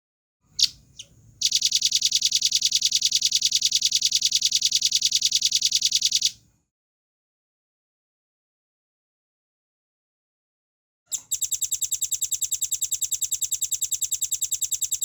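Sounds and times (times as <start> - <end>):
nuthatch calling: 0.6 - 2.0.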